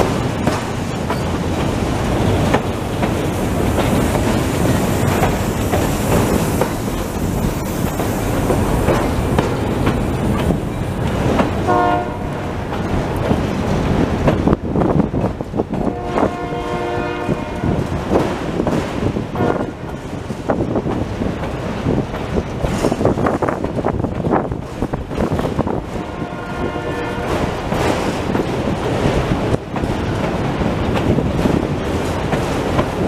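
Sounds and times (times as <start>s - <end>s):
wheels clicking over rail joints: 0.0s - 16.5s, 17.1s - 33.0s
freight train rumbling past: 0.0s - 33.0s
locomotive horn: 11.6s - 12.6s, 15.8s - 17.9s, 19.3s - 19.9s, 25.9s - 27.5s.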